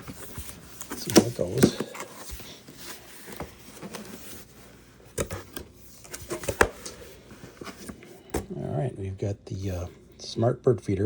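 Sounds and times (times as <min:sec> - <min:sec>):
cardboard and paper rustling: 0:00.0 - 0:08.6.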